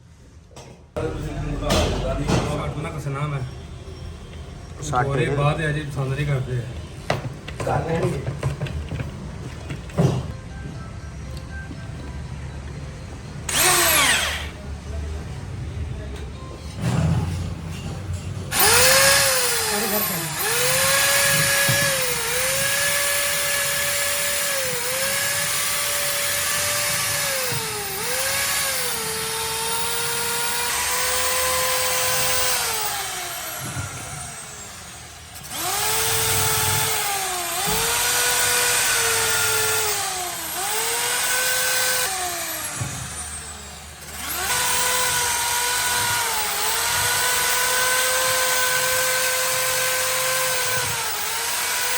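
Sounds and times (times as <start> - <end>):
power tool motor whine: 13.5 - 14.6, 18.5 - 51.9.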